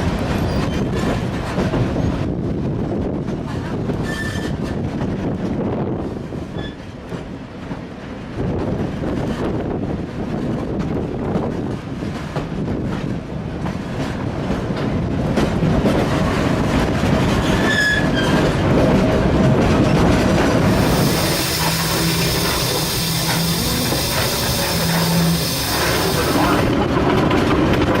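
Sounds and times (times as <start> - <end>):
train wheels clattering on track: 0.0 - 28.0
high wheel squeal: 20.7 - 26.7
loud hiss: 20.7 - 26.7.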